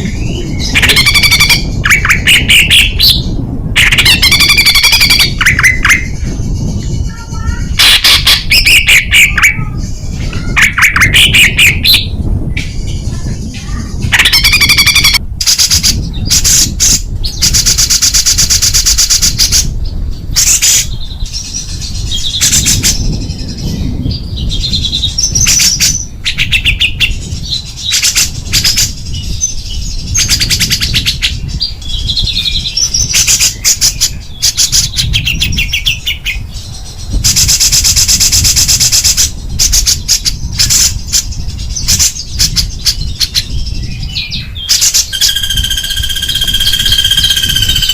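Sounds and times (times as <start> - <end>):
songbird rattling trills: 0.0 - 47.9
steady low rumble: 0.0 - 47.9
bird warbled whistled phrases: 0.1 - 6.1, 7.0 - 12.1, 12.7 - 19.6, 41.9 - 47.9.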